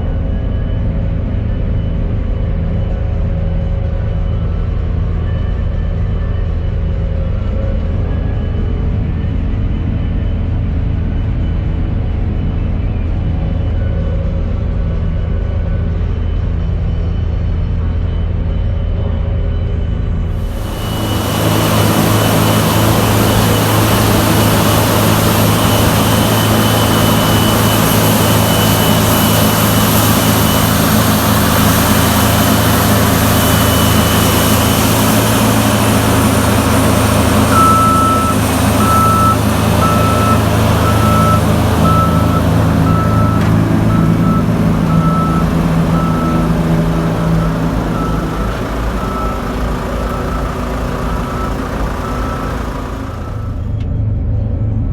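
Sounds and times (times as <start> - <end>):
heavy diesel machinery running: 0.0 - 54.6
reversing alarm beeping: 20.4 - 53.8.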